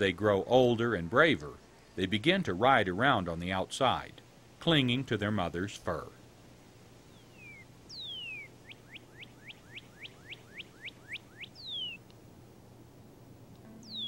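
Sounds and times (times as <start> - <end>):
songbird whistling: 7.1 - 12.0, 13.8 - 14.0.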